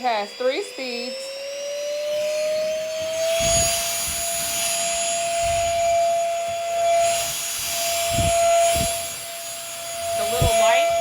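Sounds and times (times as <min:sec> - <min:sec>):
vacuum motor whine: 0:00.0 - 0:11.0
low bumps: 0:02.9 - 0:11.0.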